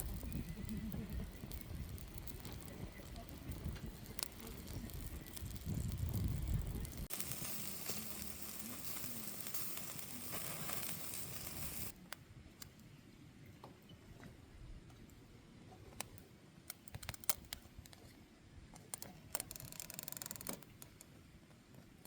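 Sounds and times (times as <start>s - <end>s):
wood fire crackling: 0.0s - 12.8s, 15.9s - 18.0s
steady sizzling hiss: 0.0s - 13.5s.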